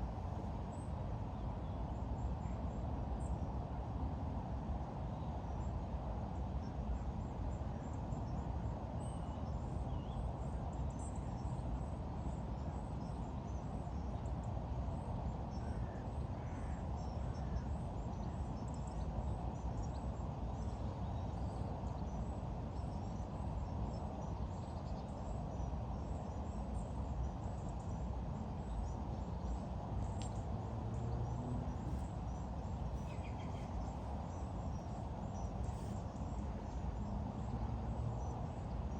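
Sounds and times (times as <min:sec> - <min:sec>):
low outdoor background noise: 0:00.0 - 0:38.9.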